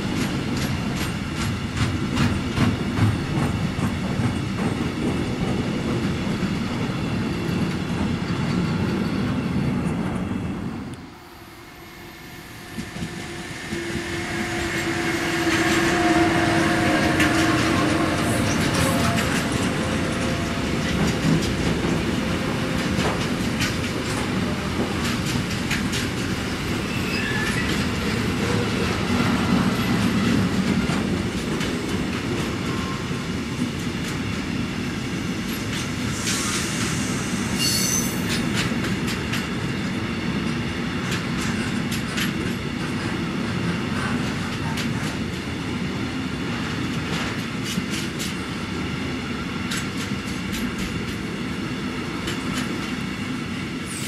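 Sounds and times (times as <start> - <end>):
train wheels rumbling on rails: 0.0 - 54.0
high-pitched wheel squeal: 11.9 - 20.2, 26.9 - 27.8, 37.6 - 38.4.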